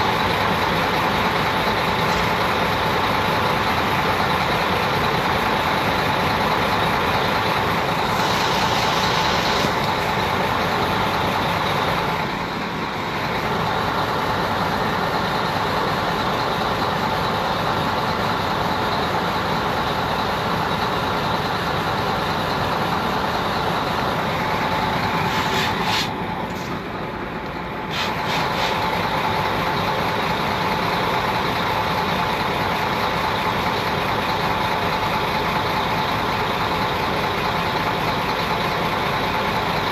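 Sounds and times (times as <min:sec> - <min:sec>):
motor vehicle running: 0:00.0 - 0:39.9.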